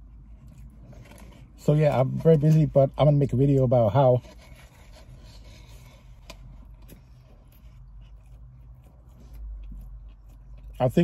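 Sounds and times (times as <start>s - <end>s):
person chewing: 0.0s - 1.6s, 4.2s - 11.0s
cardboard and paper rubbing: 3.8s - 6.2s.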